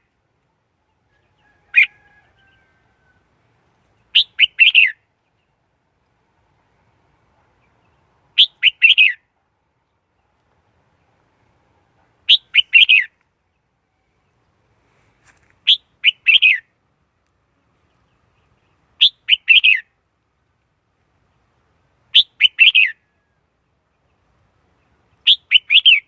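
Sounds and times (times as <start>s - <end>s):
bulbul singing: 4.1s - 5.0s, 12.3s - 13.2s, 22.1s - 23.1s.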